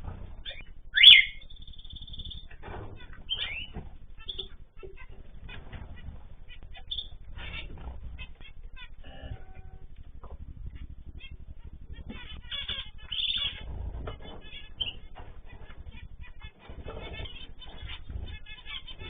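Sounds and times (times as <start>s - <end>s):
cage birds chirping: 0.0s - 19.0s
rising bird call: 0.4s - 4.6s.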